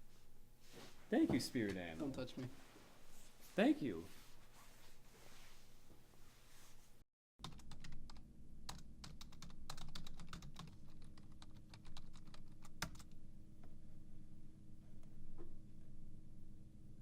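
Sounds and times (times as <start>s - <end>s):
faint steady hum: 0.0s - 17.0s
keyboard typing: 7.4s - 13.2s.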